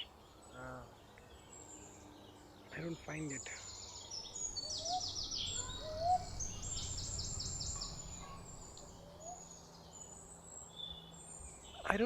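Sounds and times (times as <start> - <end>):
small birds singing: 0.0 - 12.0
low background rumble: 4.3 - 9.1.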